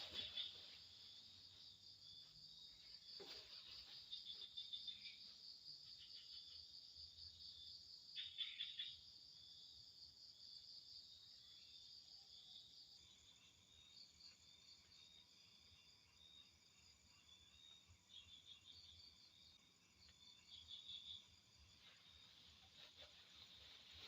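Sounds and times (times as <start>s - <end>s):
crickets trilling: 0.0s - 9.3s
rapid insect chirps: 0.0s - 24.0s.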